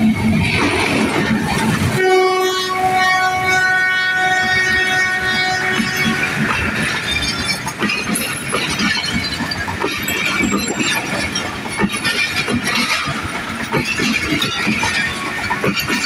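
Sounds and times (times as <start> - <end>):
train wheels rumbling on rails: 0.0 - 16.0
wheels clicking over rail joints: 4.2 - 16.0.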